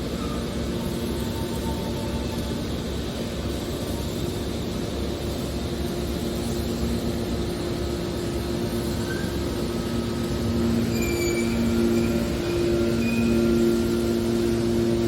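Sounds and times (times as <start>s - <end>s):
hydraulic baler humming: 8.2s - 15.0s.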